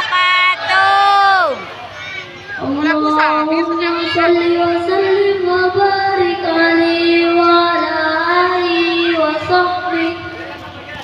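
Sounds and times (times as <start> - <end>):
child singing: 2.6 - 10.3.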